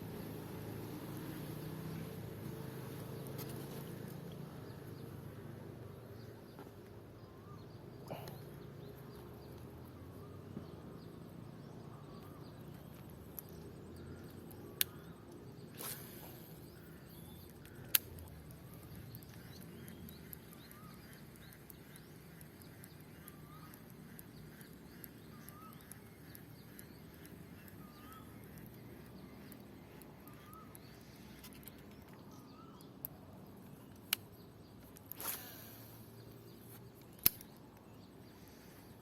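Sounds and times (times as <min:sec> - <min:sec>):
faint outdoor ambience: 0:00.0 - 0:39.0
sharp clicks: 0:12.2 - 0:38.5
bird calling: 0:18.6 - 0:32.8.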